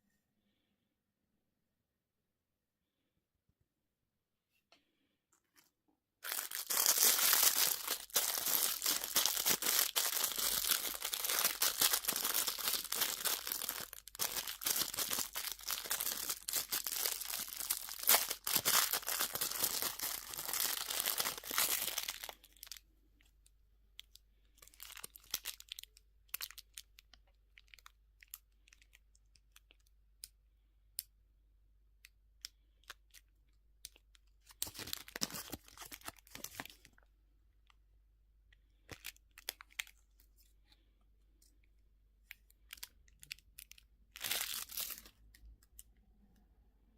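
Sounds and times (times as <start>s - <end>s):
candy wrapper crinkling and tearing: 6.2s - 23.3s, 24.0s - 30.3s, 32.0s - 37.0s, 38.7s - 40.4s, 42.2s - 45.9s.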